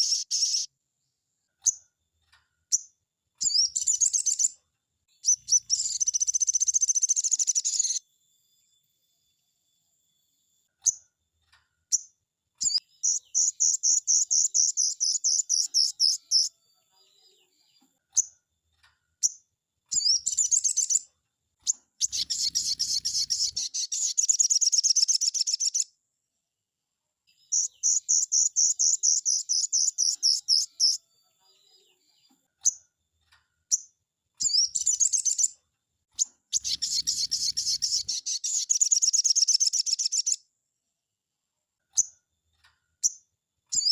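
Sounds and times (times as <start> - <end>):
bird rattling trills: 22.0 - 25.8, 36.6 - 40.3.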